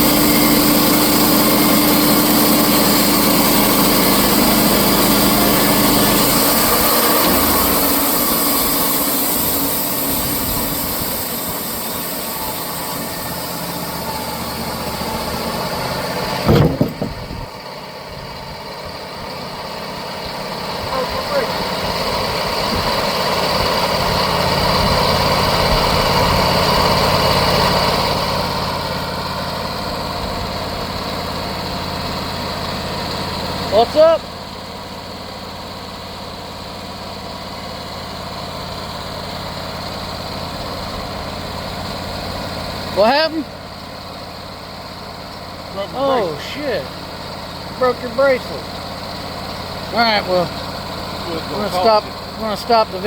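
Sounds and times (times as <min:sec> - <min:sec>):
high hiss: 0:00.0 - 0:15.4
sawmill engine running: 0:00.0 - 0:53.0
loud knocks: 0:16.4 - 0:17.4.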